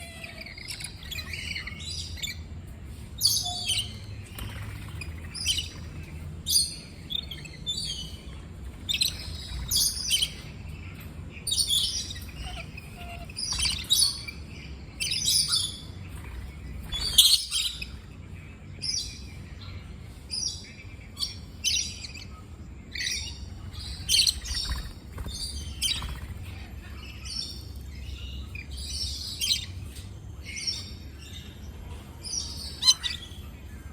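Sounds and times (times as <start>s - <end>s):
parrots chirping: 0.0s - 2.6s, 3.2s - 18.2s, 20.4s - 31.5s, 32.2s - 33.5s.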